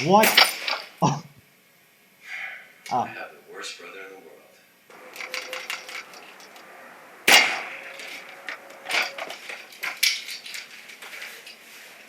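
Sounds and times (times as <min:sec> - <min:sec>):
small hard objects clattering: 0:04.9 - 0:12.0.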